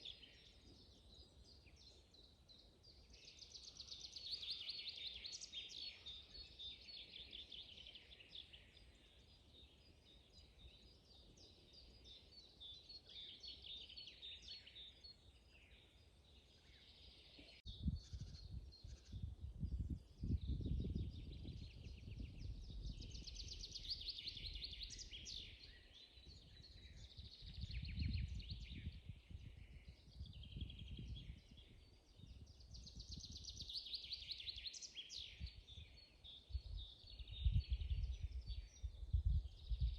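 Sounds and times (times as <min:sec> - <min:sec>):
songbirds singing: 0:00.0 - 0:39.9
low rumble in gusts: 0:17.7 - 0:23.7.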